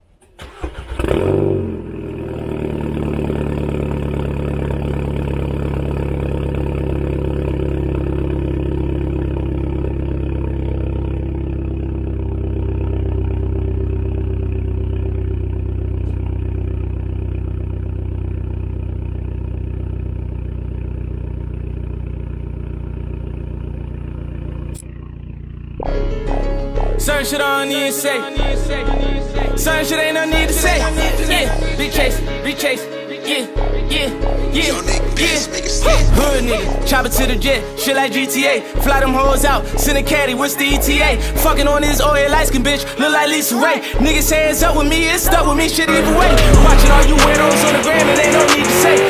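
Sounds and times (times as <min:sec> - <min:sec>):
car engine idling: 0:00.1 - 0:27.6, 0:28.4 - 0:32.6, 0:33.6 - 0:43.3, 0:43.9 - 0:49.0
car engine blip: 0:44.4 - 0:49.0.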